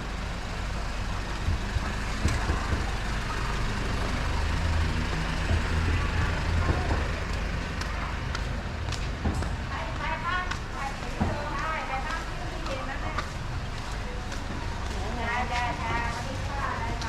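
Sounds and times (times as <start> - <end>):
heavy vehicle engine rumbling: 0.0 - 9.8
street traffic: 0.0 - 17.0.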